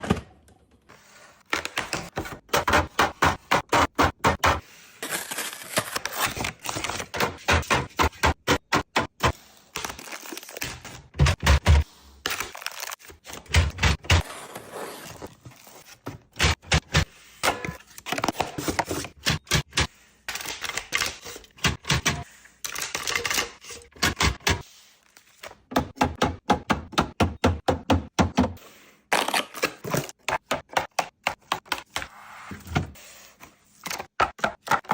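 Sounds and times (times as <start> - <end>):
plastic containers clicking and knocking: 29.6 - 32.0, 33.9 - 34.9.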